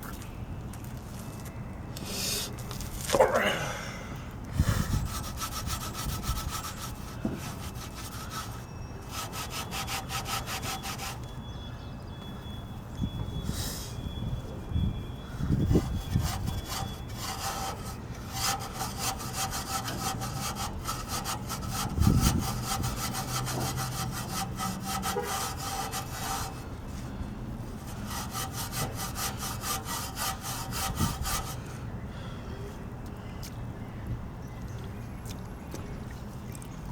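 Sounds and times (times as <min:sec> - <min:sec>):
scrubbing against metal frame: 0:15.7 - 0:31.6.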